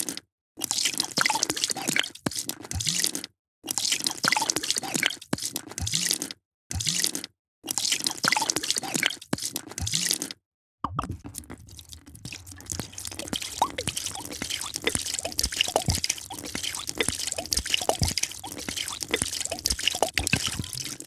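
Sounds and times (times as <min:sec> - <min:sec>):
liquid pouring into a glass: 0:10.9 - 0:21.0.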